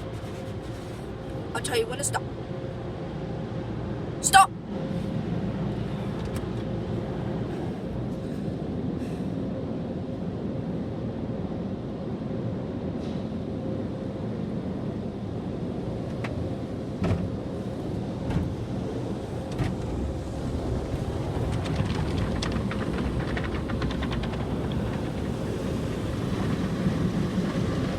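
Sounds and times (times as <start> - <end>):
car wash machinery rumbling: 14.6 - 27.9
fast rattle on car body: 21.0 - 27.2.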